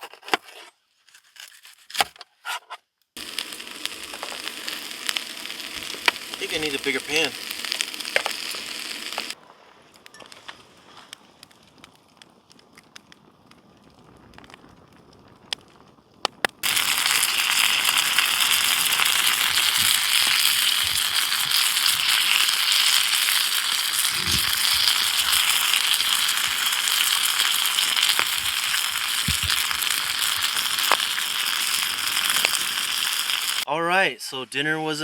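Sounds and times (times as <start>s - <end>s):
food sizzling in a pan: 3.2s - 9.4s, 16.6s - 33.7s.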